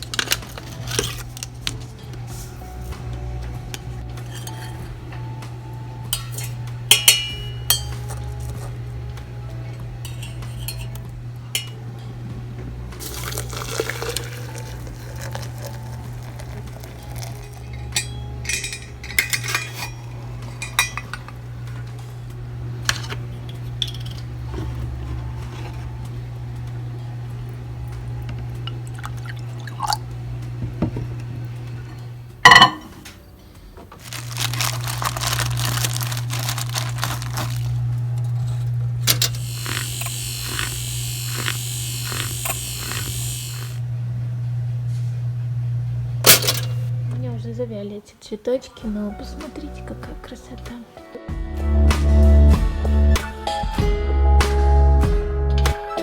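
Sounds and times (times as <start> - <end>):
steady low hum: 0.0 - 48.1
dishes and cutlery clinking: 4.2 - 5.3, 6.1 - 8.8, 9.8 - 12.1, 16.3 - 22.0, 32.4 - 33.2
liquid pouring into a glass: 13.0 - 17.6, 28.9 - 30.0.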